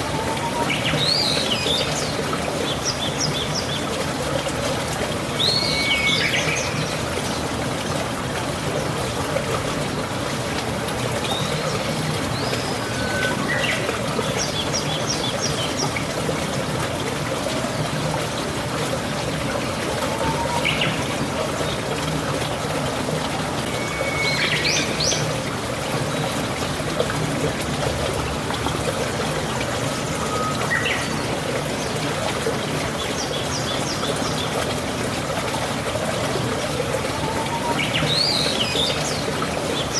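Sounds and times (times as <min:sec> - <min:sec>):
steady rain: 0:00.0 - 0:39.9
water trickling and pouring: 0:00.0 - 0:39.9
bird chirping and whistling: 0:12.4 - 0:13.8.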